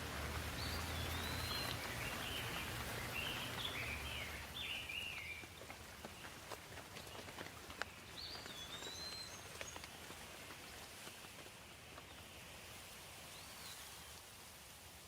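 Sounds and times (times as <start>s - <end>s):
light rain hissing: 0.0s - 5.7s, 7.0s - 15.0s
rain drips: 0.0s - 15.0s
bird whistled calls: 0.6s - 5.4s.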